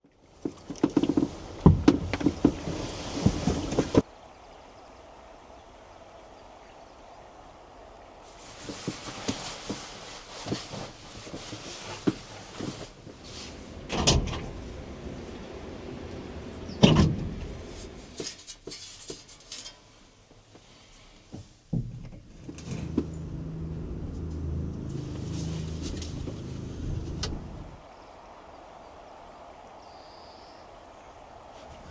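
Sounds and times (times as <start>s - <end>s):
vehicle engine starting and running: 13.4s - 18.3s, 22.3s - 27.8s
vehicle doors shutting: 13.7s - 15.2s, 16.4s - 18.2s, 21.8s - 27.8s.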